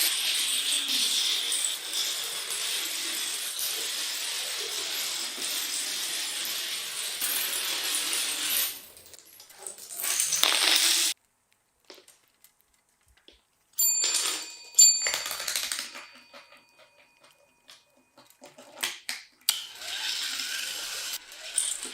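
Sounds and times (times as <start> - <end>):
dominoes clattering: 0.0 - 11.2, 14.1 - 17.0, 19.7 - 21.9.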